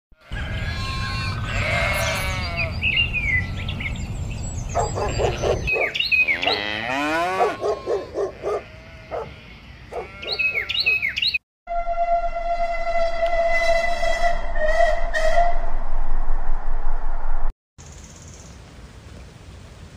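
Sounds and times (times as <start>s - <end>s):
sheep bleating: 0.2s - 2.7s, 6.5s - 11.0s
birds chirping: 0.4s - 7.0s, 7.6s - 11.4s.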